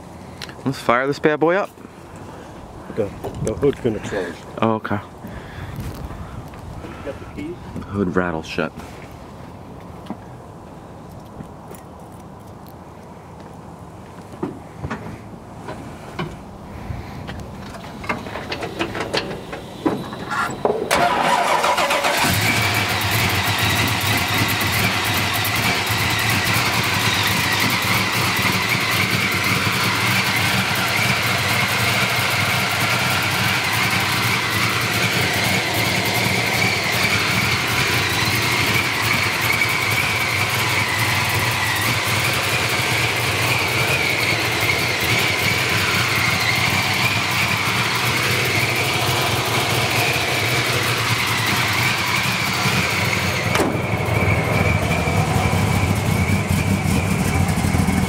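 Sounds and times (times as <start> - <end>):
engine idling: 16.7 - 58.0
engine starter cranking: 17.8 - 25.1
high whine: 33.7 - 58.0.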